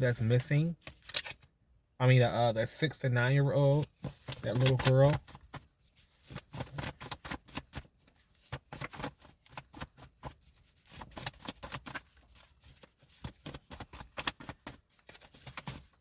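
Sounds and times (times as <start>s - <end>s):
cards being shuffled: 0.8s - 1.4s, 4.0s - 16.0s.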